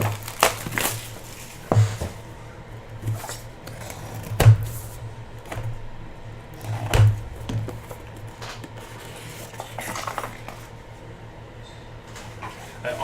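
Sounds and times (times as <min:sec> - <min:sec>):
sharp knocks: 0:06.8 - 0:08.7.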